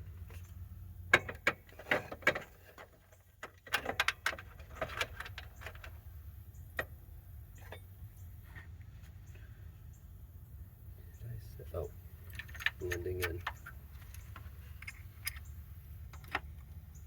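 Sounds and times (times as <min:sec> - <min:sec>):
steady low hum: 0:00.0 - 0:17.0
small metal parts clicking: 0:12.2 - 0:16.8.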